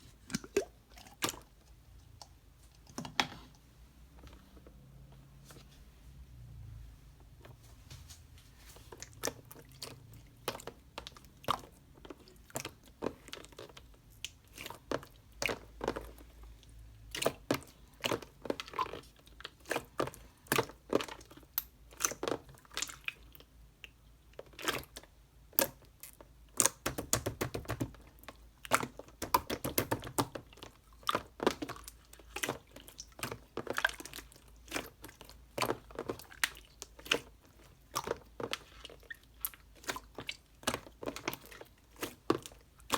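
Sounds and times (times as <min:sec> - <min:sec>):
person chewing crunchy food: 0:30.3 - 0:42.9.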